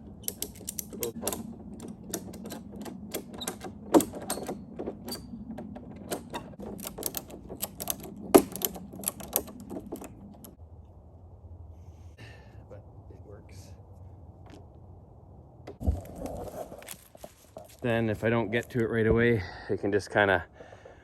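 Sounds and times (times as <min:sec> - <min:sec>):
ratchet strap clicking: 0:00.2 - 0:05.3, 0:06.1 - 0:10.6.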